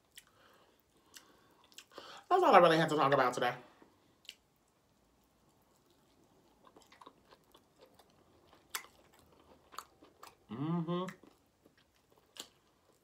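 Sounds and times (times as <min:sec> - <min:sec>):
man chewing food: 0:00.0 - 0:02.1, 0:03.8 - 0:13.0
man humming: 0:10.5 - 0:11.2.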